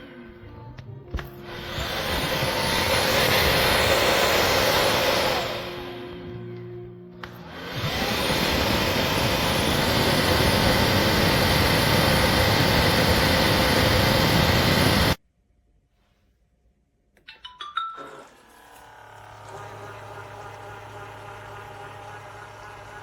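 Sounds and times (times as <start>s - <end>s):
wet-dry vacuum motor whining: 1.2s - 6.4s, 7.2s - 15.2s, 18.0s - 23.0s.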